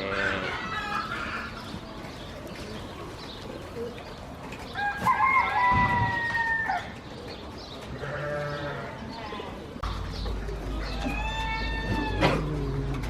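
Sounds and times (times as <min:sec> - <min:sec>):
rooster crowing: 0:11.0 - 0:12.4.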